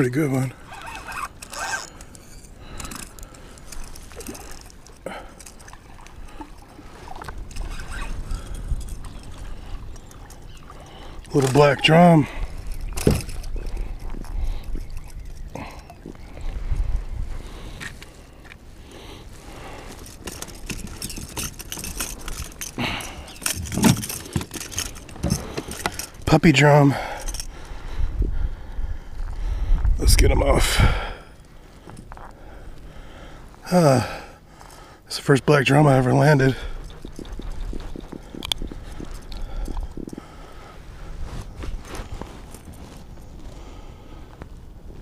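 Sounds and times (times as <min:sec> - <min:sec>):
fishing gear clicks and rattles: 0:00.0 - 0:18.6, 0:19.2 - 0:27.9, 0:31.3 - 0:45.0
breathy sounds: 0:00.5 - 0:29.8, 0:30.6 - 0:35.1, 0:36.3 - 0:44.5
wind buffeting microphone: 0:05.6 - 0:18.0, 0:19.5 - 0:31.3, 0:36.3 - 0:45.0.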